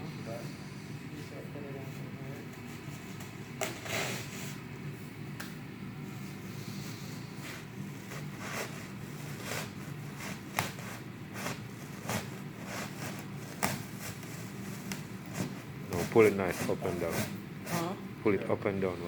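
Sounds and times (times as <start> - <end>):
low room hum: 0.0 - 19.0
knife scraping duct board: 7.5 - 17.8.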